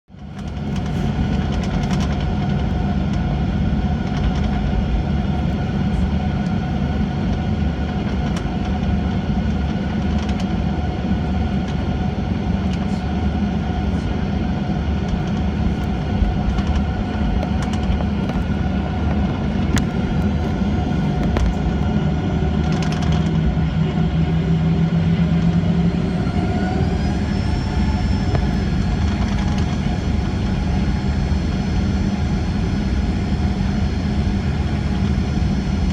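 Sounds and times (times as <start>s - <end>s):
jet engines rumbling and whining: 0.1s - 35.9s.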